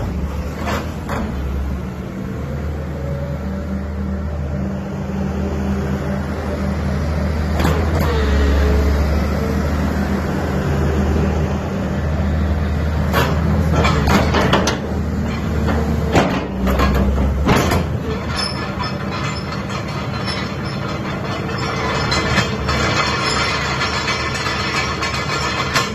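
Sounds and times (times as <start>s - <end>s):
excavator diesel engine running: 0.0s - 25.9s
sharp knocks and clatters: 13.1s - 25.9s.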